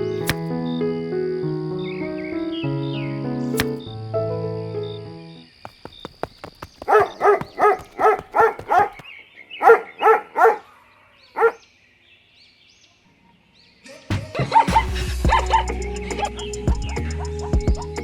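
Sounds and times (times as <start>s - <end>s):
dog barking: 9.6s - 10.7s, 11.4s - 11.6s.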